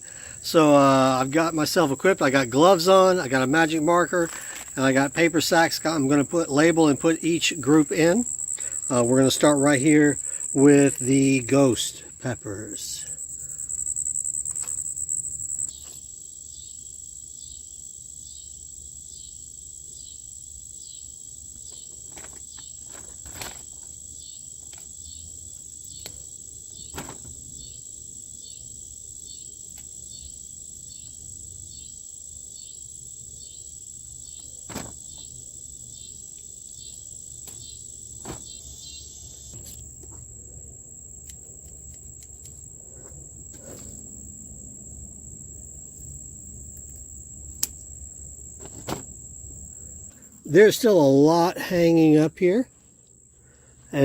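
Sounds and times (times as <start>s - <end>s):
insects high-pitched buzz: 0.0s - 54.0s
rapid pulsing chirp: 36.8s - 39.6s.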